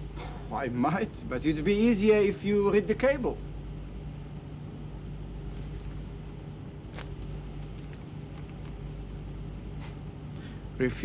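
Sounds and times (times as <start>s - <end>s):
faint rustles: 5.4s - 8.8s.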